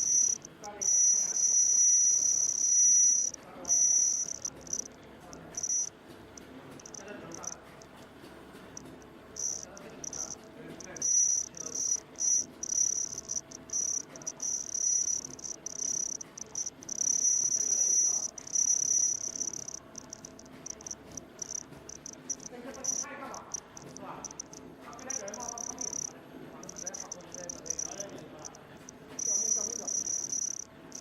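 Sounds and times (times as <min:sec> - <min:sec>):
ultrasonic welder high-pitched whine: 0:00.0 - 0:04.9, 0:09.4 - 0:26.1, 0:29.2 - 0:31.0.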